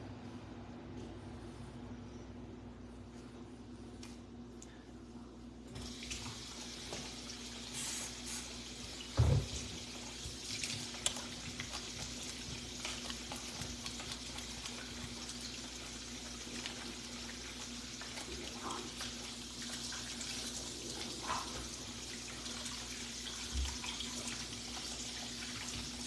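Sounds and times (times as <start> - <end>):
water running from a tap: 5.7 - 26.0.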